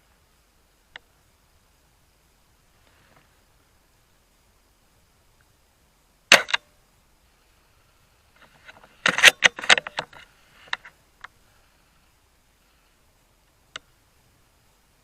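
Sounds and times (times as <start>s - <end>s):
airsoft rifle shot: 6.3s - 6.7s.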